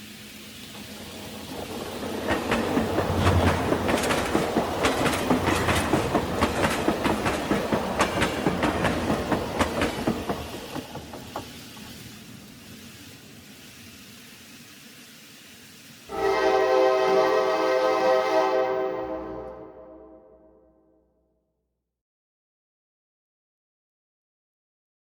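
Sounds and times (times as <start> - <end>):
model train wheels clicking: 0.5 - 13.5.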